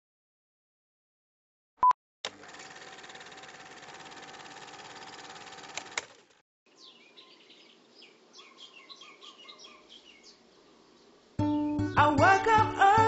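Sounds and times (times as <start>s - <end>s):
birds chirping: 6.7s - 12.5s.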